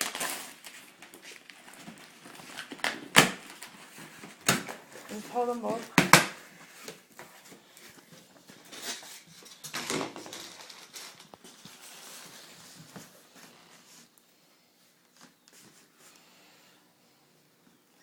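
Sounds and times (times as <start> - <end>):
packaging rustling: 0.0 - 13.9.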